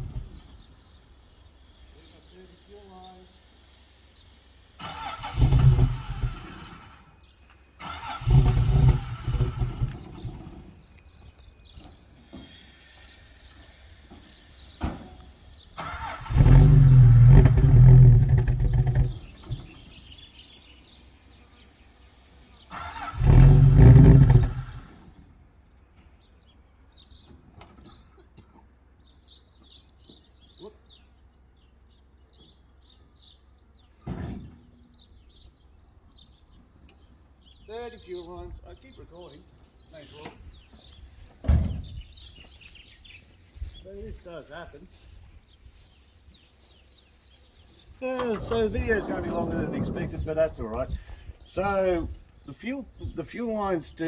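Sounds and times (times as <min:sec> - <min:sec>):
engine cranking without starting: 0:04.6 - 0:07.2, 0:07.8 - 0:10.8, 0:15.7 - 0:20.0, 0:22.7 - 0:25.2.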